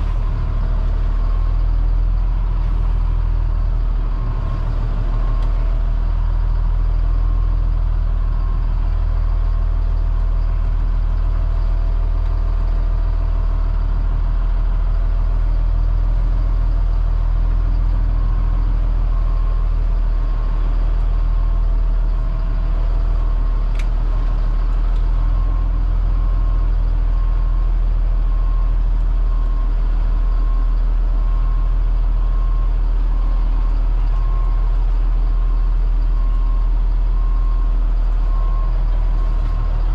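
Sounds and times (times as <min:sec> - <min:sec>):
bus diesel engine running: 0:00.0 - 0:39.9
faint beep: 0:35.5 - 0:39.9.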